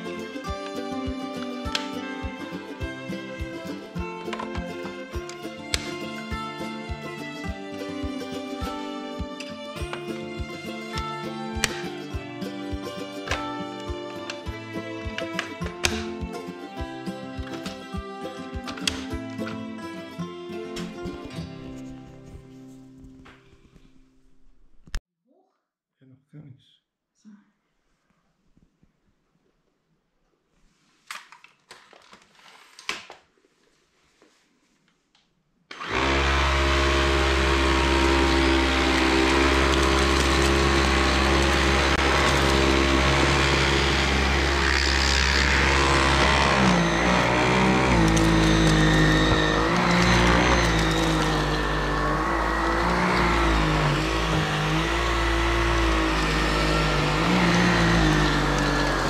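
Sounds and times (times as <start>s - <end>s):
cordless vacuum motor running: 35.7s - 59.0s.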